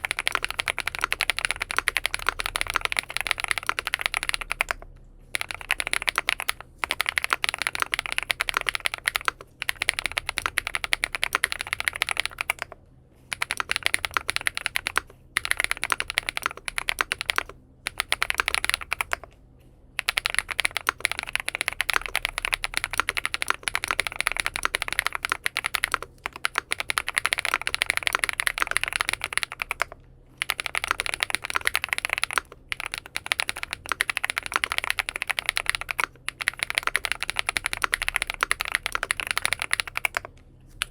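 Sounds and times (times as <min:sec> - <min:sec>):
mechanical keyboard typing: 0:00.0 - 0:19.3, 0:20.0 - 0:40.9.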